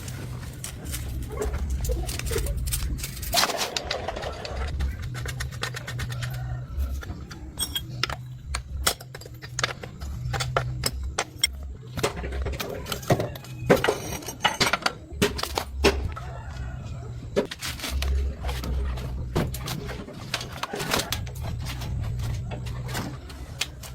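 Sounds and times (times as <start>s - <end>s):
low steady hum: 0.0s - 23.9s
metal clinks and knocks: 0.6s - 15.9s.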